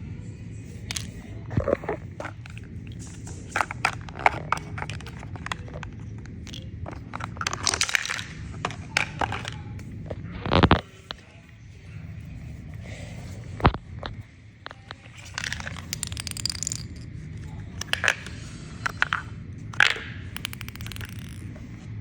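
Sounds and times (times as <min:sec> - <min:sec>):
steady low hum: 0:00.0 - 0:22.0
crinkling: 0:00.8 - 0:11.4
plastic toy pieces clicking: 0:15.2 - 0:17.0, 0:19.8 - 0:21.6.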